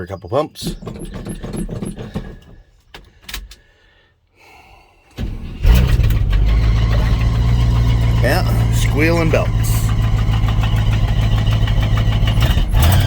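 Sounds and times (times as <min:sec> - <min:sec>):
accessory belts squealing: 0:00.0 - 0:02.8
engine cranking and running: 0:00.6 - 0:03.6, 0:05.1 - 0:13.0.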